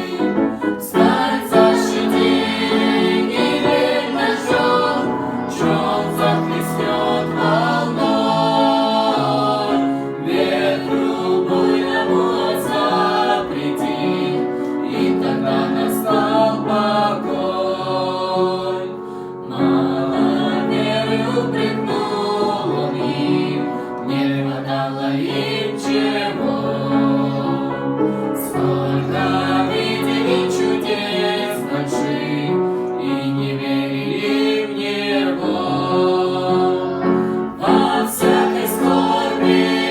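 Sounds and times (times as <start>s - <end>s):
sustained accompanying notes: 0.0s - 14.0s
choir singing: 0.0s - 39.9s.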